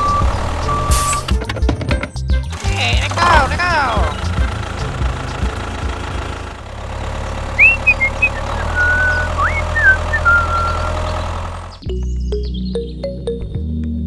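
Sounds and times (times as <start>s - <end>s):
high sliding chirps: 7.5s - 11.8s.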